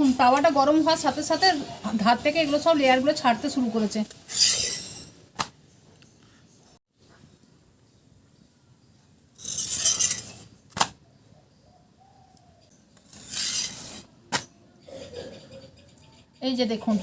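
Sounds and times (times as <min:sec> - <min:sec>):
spatula scraping a griddle: 0:04.3 - 0:05.1, 0:09.4 - 0:10.5, 0:13.1 - 0:14.1.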